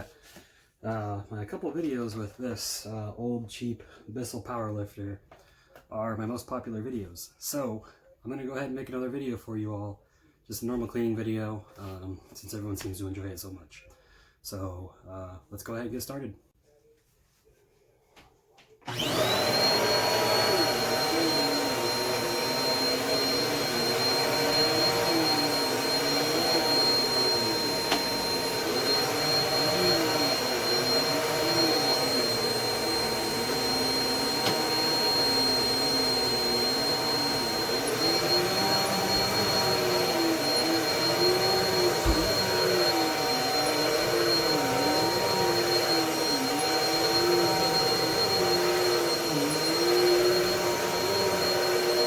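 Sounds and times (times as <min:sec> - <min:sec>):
vacuum cleaner motor whine: 0:18.8 - 0:52.0.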